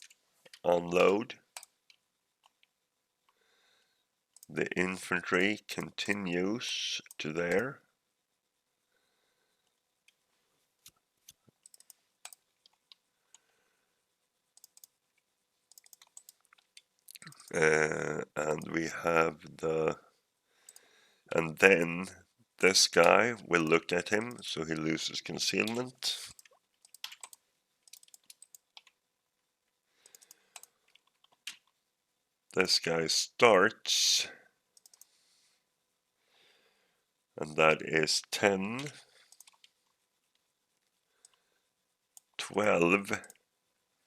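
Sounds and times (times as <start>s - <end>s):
faint clicking and tapping: 0.0s - 3.5s, 7.0s - 7.7s, 9.5s - 13.6s, 14.5s - 17.6s, 25.5s - 29.0s, 29.6s - 31.8s, 38.8s - 43.5s
computer mouse clicks: 10.8s - 13.4s, 14.6s - 14.9s, 15.7s - 17.5s, 25.6s - 29.0s, 30.0s - 31.8s, 34.8s - 35.1s, 38.8s - 39.8s
keyboard clicks: 11.6s - 13.0s, 14.6s - 14.9s, 15.7s - 17.6s, 25.6s - 29.0s, 38.8s - 39.7s.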